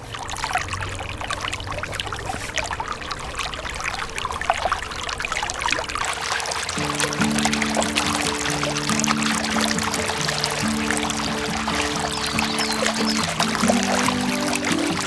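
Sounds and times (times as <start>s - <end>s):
water splashing and trickling: 0.0s - 15.0s
background music: 6.8s - 15.0s.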